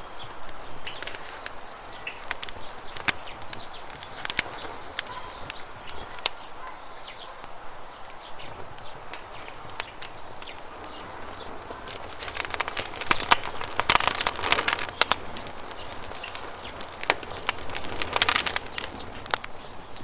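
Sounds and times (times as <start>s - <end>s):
campfire crackling: 0.0s - 20.0s
small birds chirping: 0.0s - 20.0s.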